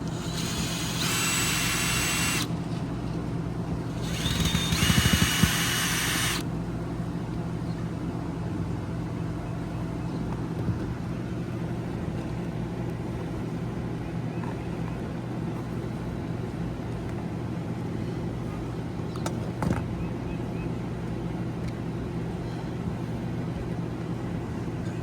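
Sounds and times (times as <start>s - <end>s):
power drill whining: 0.0s - 2.5s, 4.0s - 6.4s.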